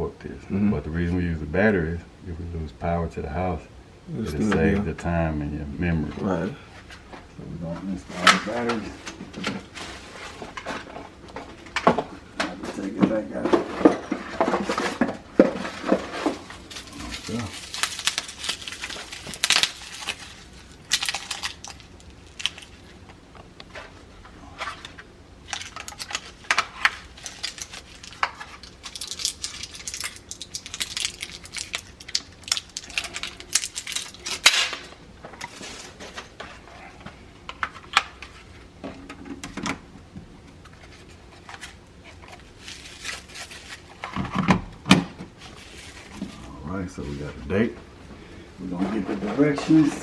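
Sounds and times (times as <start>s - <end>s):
handling plastic parts clicking: 14.7s - 23.8s, 24.6s - 36.2s.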